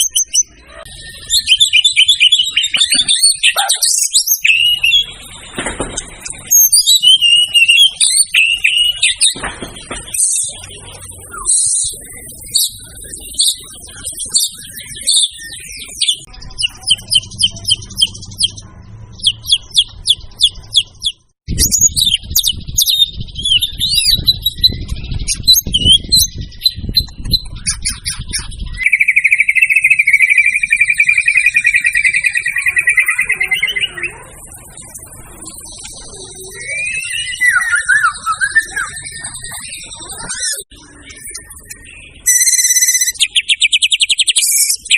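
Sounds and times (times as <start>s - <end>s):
bird singing high whistles: 0.0s - 5.2s, 6.5s - 9.4s, 36.4s - 40.6s, 42.2s - 44.9s
bird rapid trill: 0.0s - 44.9s.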